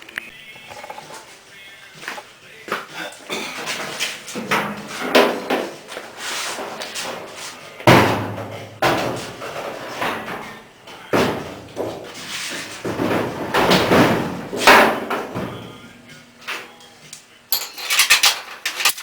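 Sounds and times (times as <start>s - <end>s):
metal door clunks and bangs: 7.9s - 12.1s, 12.8s - 15.8s.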